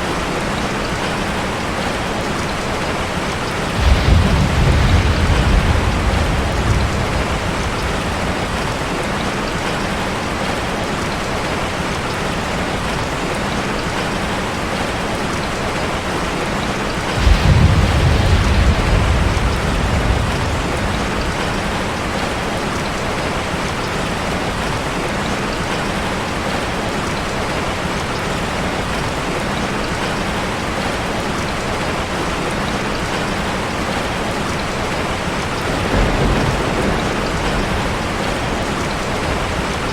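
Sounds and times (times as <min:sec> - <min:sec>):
low rumble: 0:03.8 - 0:09.1.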